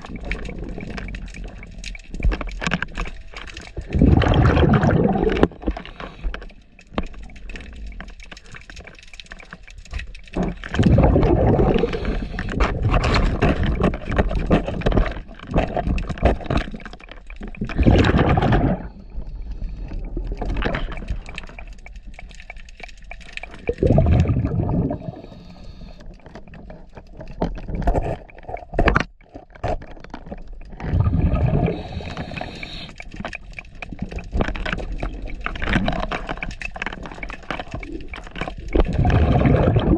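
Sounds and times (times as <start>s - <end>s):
bubbling gushes of exhaled air: 0.0s - 2.8s, 3.6s - 6.5s, 10.3s - 21.7s, 23.4s - 26.6s, 30.7s - 39.9s
underwater gurgling and crackle: 0.0s - 39.9s
diver breathing through regulator: 11.2s - 12.9s, 24.6s - 26.3s, 31.0s - 33.2s.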